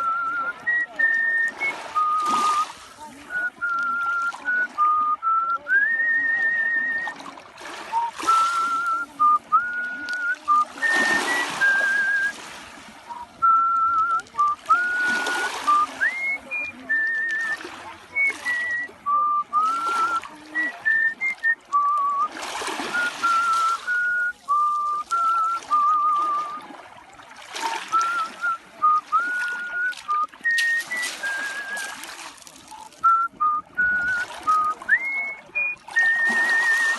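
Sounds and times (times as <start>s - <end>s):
person whistling a melody: 0.0s - 7.2s, 7.9s - 12.4s, 13.1s - 26.7s, 27.9s - 36.9s
rushing water-like noise: 0.0s - 36.9s.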